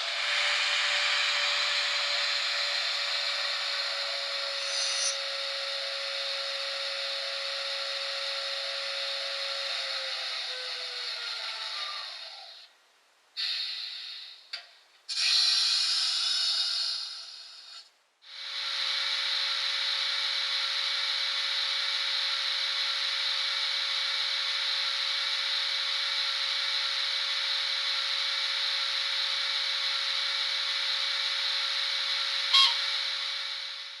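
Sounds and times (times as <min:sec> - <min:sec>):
model locomotive rasping: 0:00.0 - 0:12.7, 0:18.4 - 0:34.0
constant electric hum: 0:00.0 - 0:13.4
short sharp tone: 0:32.5 - 0:32.9.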